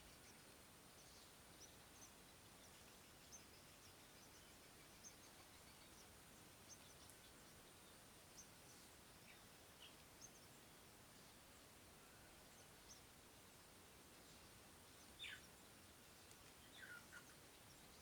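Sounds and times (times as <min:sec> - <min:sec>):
steady outdoor hiss: 0:00.0 - 0:18.0
faint high bird chirps: 0:15.0 - 0:15.6, 0:16.6 - 0:18.0.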